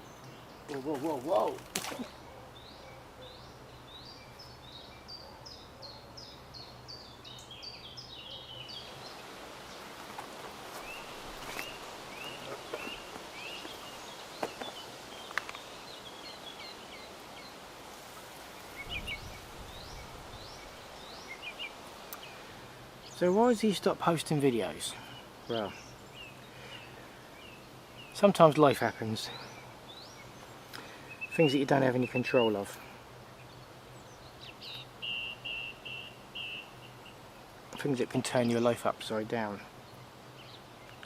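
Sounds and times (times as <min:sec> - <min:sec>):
high falling bird chirps: 0:00.0 - 0:17.6, 0:18.5 - 0:22.4, 0:33.4 - 0:37.8
small birds chirping: 0:00.0 - 0:41.0
steady background hiss: 0:00.0 - 0:41.0
lower bird chirps: 0:10.7 - 0:17.6, 0:18.5 - 0:23.4, 0:24.9 - 0:38.7.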